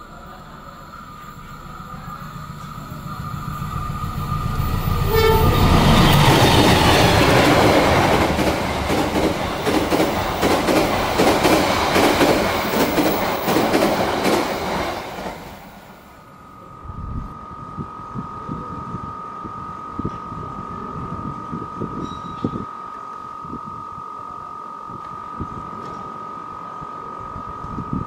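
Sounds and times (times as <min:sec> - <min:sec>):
locomotive diesel engine: 0:00.0 - 0:16.7
train horn blast: 0:04.6 - 0:07.6
clickety-clack over rail joints: 0:06.2 - 0:15.6.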